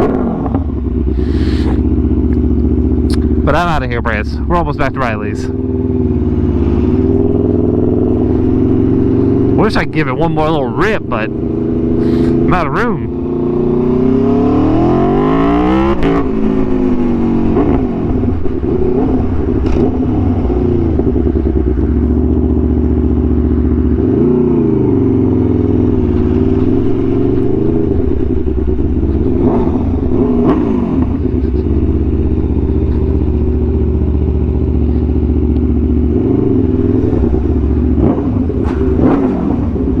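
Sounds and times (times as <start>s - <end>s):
motorcycle engine at low speed: 0.0s - 40.0s.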